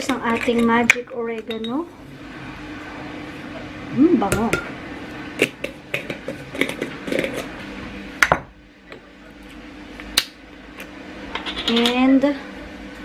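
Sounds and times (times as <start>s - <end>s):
utensils and jars clinking: 0.0s - 1.8s, 11.4s - 12.1s.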